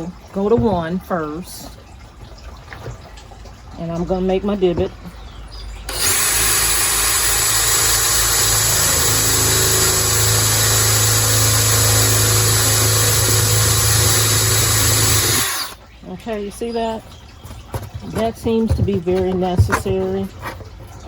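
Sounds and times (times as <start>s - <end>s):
electric drill running: 5.9s - 15.8s.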